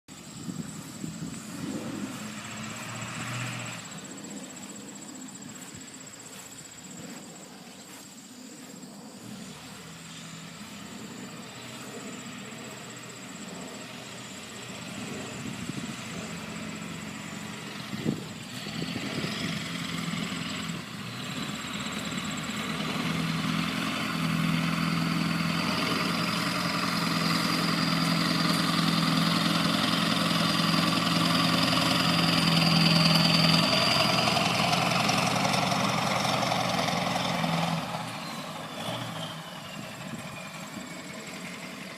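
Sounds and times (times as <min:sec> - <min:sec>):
truck engine running: 0:00.1 - 0:41.9.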